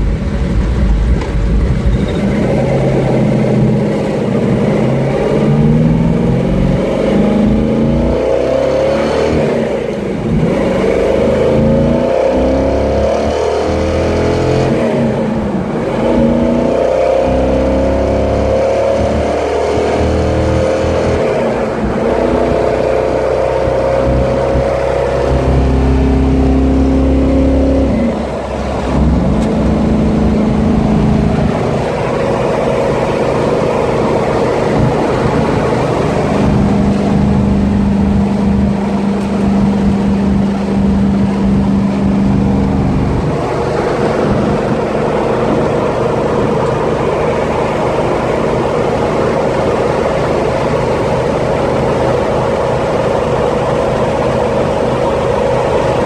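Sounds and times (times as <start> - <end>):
car engine running while driving: 0.0 - 56.0.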